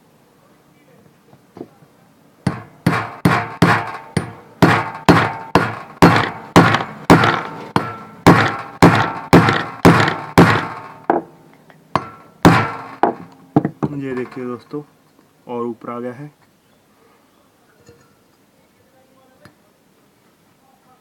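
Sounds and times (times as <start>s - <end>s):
hammer striking metal: 2.5s - 11.3s, 11.9s - 14.4s.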